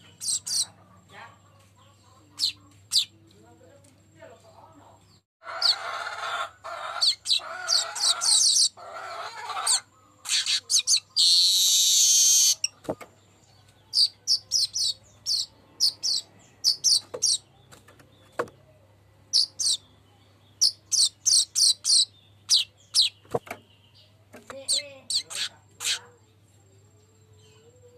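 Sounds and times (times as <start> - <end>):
bird song chattering: 0.0 - 3.6, 6.8 - 8.8, 9.4 - 27.9
bird high wheezing buzz: 11.2 - 12.6.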